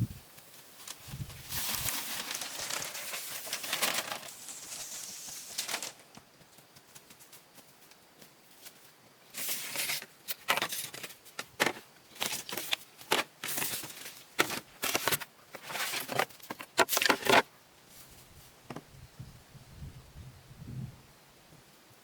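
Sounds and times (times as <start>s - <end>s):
rustling scraping strokes: 0.4s - 6.0s.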